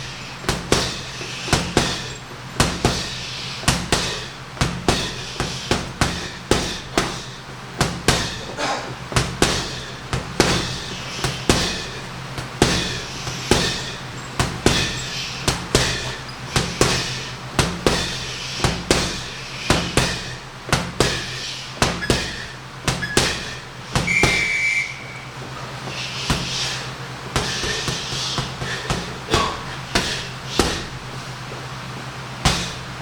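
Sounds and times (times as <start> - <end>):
punches thudding on punching bag: 0.0 - 31.2, 32.4 - 33.0
steady low hum: 0.0 - 33.0.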